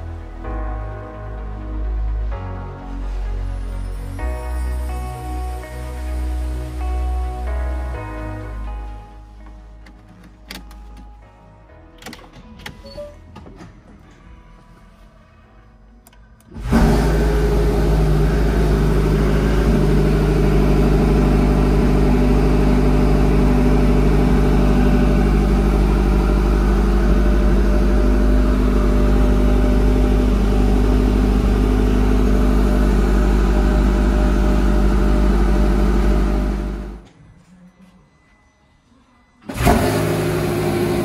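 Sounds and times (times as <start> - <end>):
car engine idling fast: 16.6 - 37.0.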